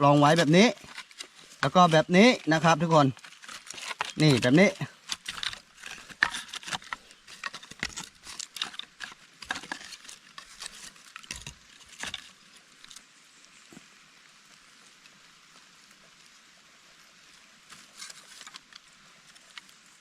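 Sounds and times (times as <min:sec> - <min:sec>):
kindling rustling and clicking: 0:00.0 - 0:13.0.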